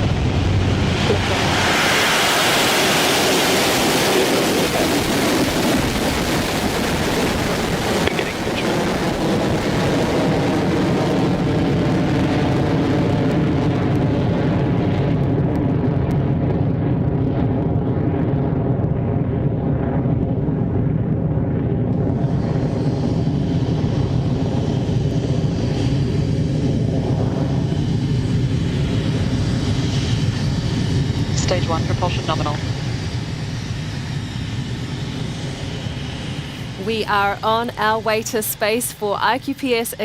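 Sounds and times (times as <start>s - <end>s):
rocket engines roaring: 0.0s - 40.0s.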